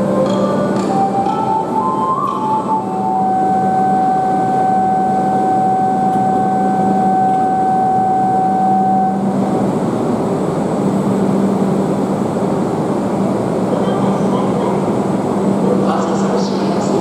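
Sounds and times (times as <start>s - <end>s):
steady high tone: 0.0s - 17.0s
train rushing past: 0.0s - 17.0s.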